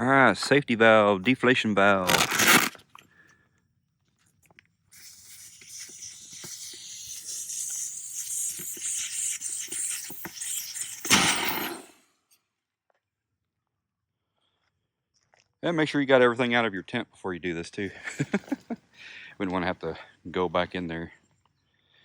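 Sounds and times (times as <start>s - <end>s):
air hissing out of valve: 4.9s - 12.0s.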